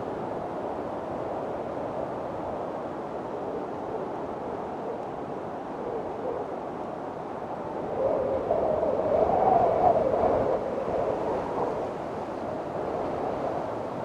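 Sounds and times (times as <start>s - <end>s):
wind howling: 0.0s - 12.2s.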